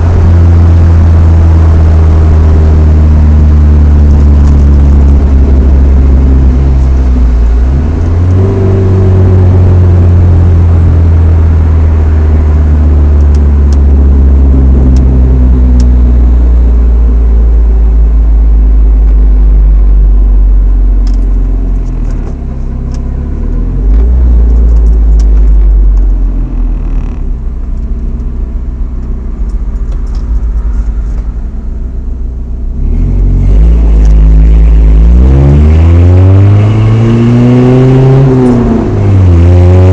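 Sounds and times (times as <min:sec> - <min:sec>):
truck engine drone from inside cab: 0:00.0 - 0:39.9.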